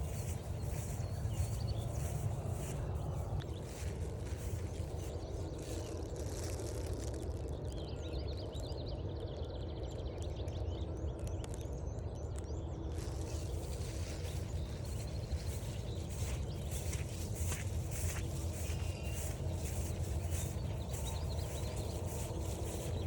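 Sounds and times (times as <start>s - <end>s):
low background rush: 0.0s - 8.0s, 11.0s - 23.0s
songbirds chirping and trilling: 0.0s - 23.0s.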